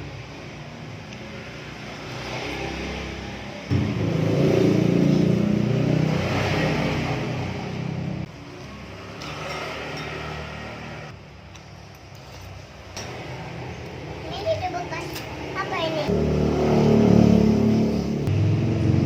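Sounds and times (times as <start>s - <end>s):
vehicle engine running: 3.4s - 9.0s, 13.2s - 19.0s.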